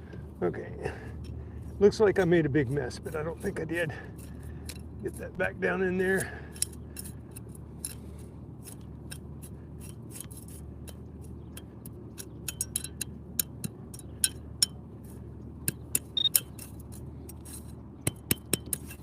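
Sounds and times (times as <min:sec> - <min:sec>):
brief high beep: 0:16.2 - 0:16.4.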